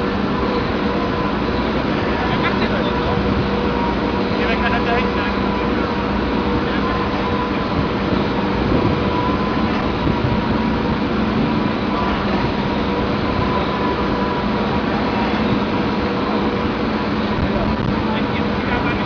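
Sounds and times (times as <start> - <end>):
heavy machinery rumbling: 0.0 - 19.0.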